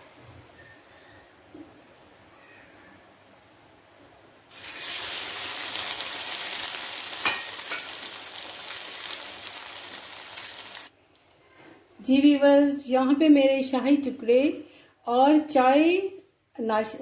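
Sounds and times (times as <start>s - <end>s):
bread sizzling in a pan: 4.5s - 10.9s.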